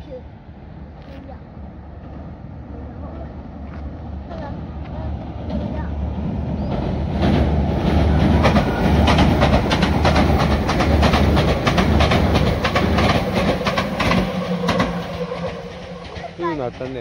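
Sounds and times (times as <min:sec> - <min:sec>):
electric train rumbling: 0:00.0 - 0:17.0
train wheels clacking over rail joints: 0:06.6 - 0:17.0.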